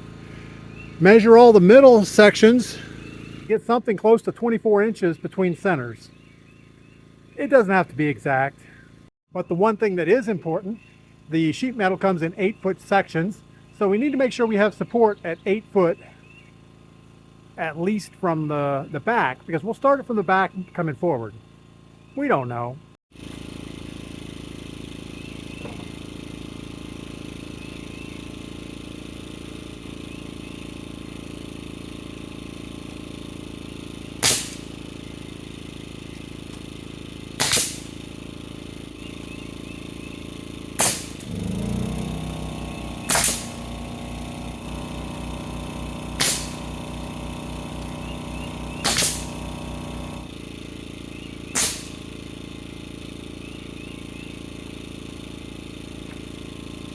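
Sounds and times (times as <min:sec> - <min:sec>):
motor humming: 0:00.0 - 0:03.6, 0:23.1 - 0:56.9
nail gun firing: 0:34.1 - 0:35.0, 0:36.5 - 0:38.2, 0:40.7 - 0:50.4, 0:51.5 - 0:52.3.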